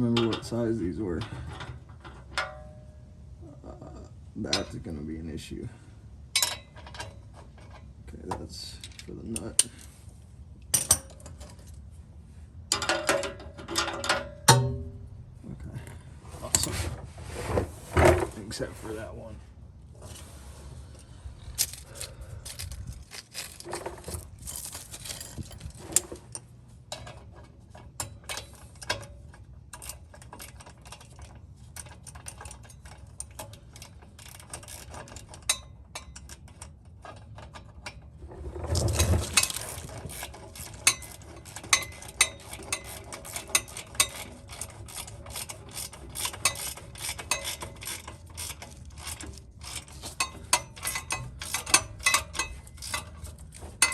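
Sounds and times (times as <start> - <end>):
metal clatter: 20.0 - 53.9
tool clinks: 21.6 - 26.1, 46.2 - 53.9
ratchet wrench clicking: 40.1 - 53.9.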